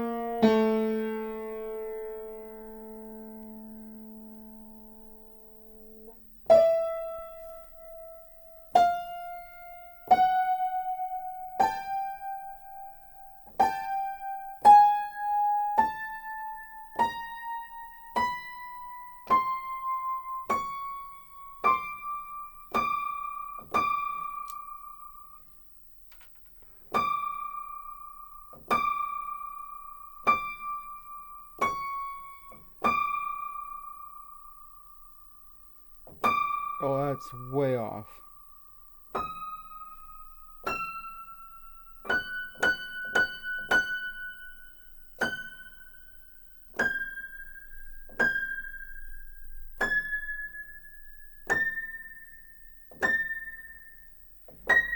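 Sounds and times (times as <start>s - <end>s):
piano notes ringing: 0.0s - 25.4s.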